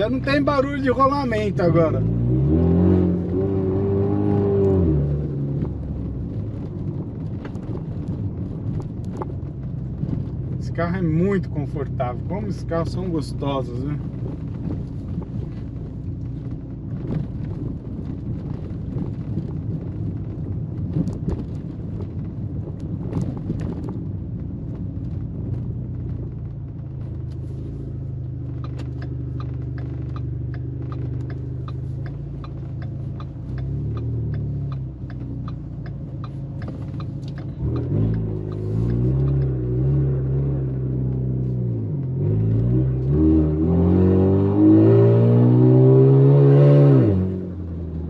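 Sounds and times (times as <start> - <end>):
car engine droning and revving: 0.0 - 48.0
light regular ticking: 28.0 - 39.6.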